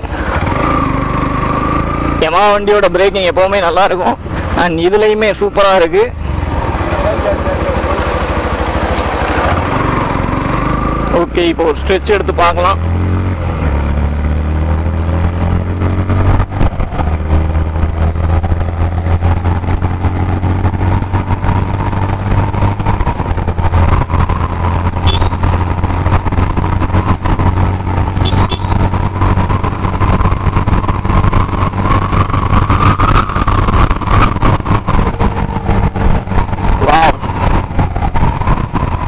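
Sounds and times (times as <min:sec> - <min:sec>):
motorcycle engine at speed: 0:00.0 - 0:04.6, 0:06.1 - 0:39.0
wind buffeting microphone: 0:25.5 - 0:39.0.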